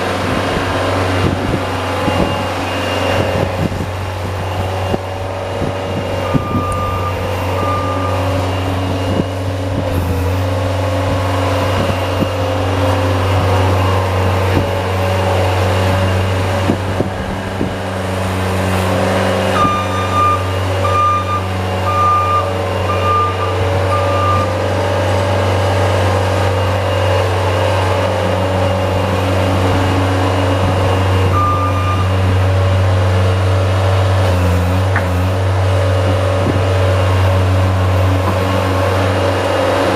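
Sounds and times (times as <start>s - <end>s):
reversing alarm beeping: 1.9s - 5.0s, 5.9s - 9.5s, 19.5s - 24.8s, 25.6s - 32.4s.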